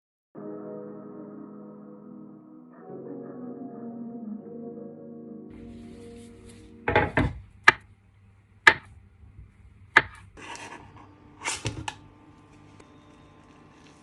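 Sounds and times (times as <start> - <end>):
knife knocking on cutting board: 6.9 - 7.8, 8.7 - 8.9, 10.0 - 10.2.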